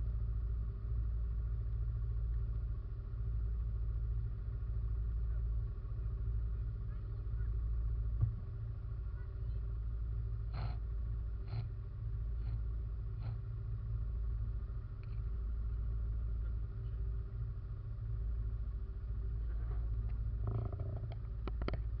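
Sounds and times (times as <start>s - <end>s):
atv engine running: 0.0s - 22.0s
short knocks and rattles: 19.5s - 22.0s.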